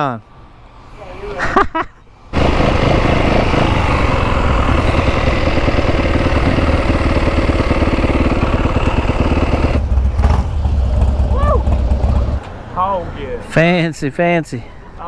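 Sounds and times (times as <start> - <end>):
motorcycle engine idling: 2.4 - 12.4.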